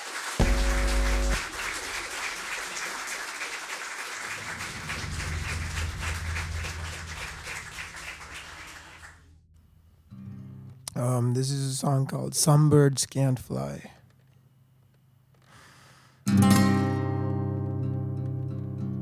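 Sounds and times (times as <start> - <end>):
audience applauding: 0.0 - 9.2
loud low-pitched tone: 0.4 - 1.8.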